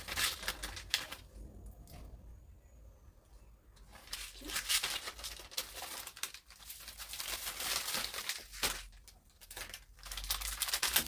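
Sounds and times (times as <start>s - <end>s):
plastic packaging crinkling and tearing: 0.0s - 1.4s, 3.8s - 11.0s.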